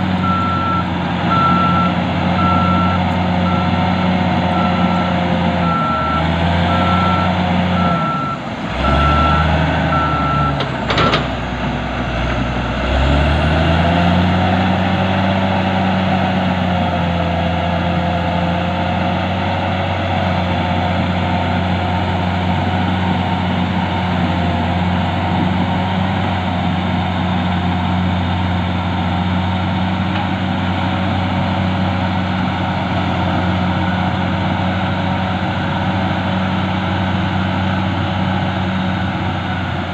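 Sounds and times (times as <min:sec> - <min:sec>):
heavy machinery diesel engine: 0:00.0 - 0:39.9
reversing alarm beeping: 0:00.2 - 0:03.9, 0:04.5 - 0:11.2.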